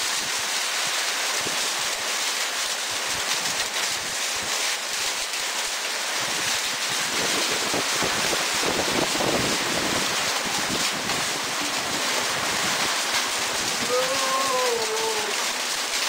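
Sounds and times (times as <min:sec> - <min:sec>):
hail and rain pelting down: 0:00.0 - 0:16.0
wind rumbling on microphone: 0:06.2 - 0:13.9.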